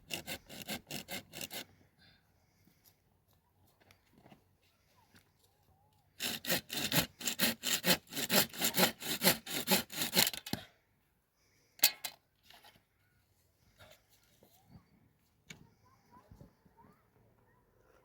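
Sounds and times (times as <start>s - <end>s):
hand saw cutting wood: 0.0s - 1.7s, 6.2s - 10.6s.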